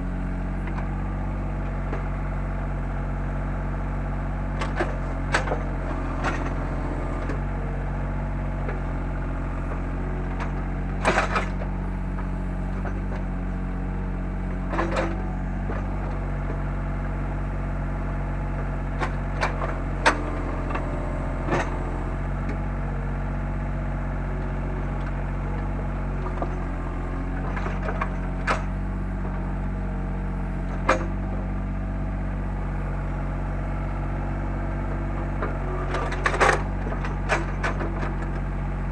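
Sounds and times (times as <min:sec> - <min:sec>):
excavator diesel engine running: 0:00.0 - 0:38.9
excavator bucket knocks and clanks: 0:04.6 - 0:07.6, 0:09.5 - 0:13.4, 0:14.5 - 0:16.9, 0:18.6 - 0:22.7, 0:24.5 - 0:29.7, 0:30.6 - 0:32.0, 0:33.8 - 0:38.5.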